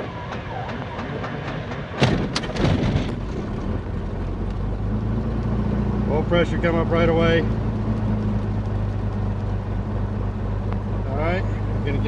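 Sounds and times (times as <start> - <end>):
engine firing pops: 0.3 - 4.6.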